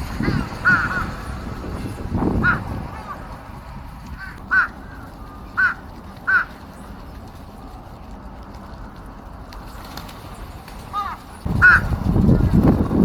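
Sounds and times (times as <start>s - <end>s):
crows cawing: 0.2s - 1.3s, 2.4s - 3.1s, 4.2s - 6.6s, 11.0s - 11.9s.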